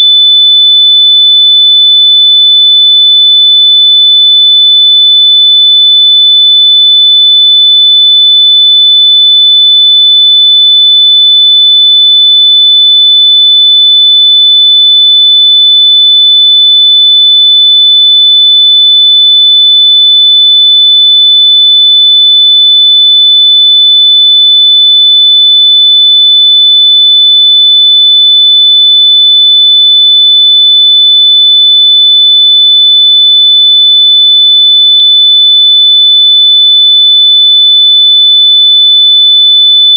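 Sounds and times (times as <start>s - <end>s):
continuous high-pitched beep: 0.0s - 0.6s.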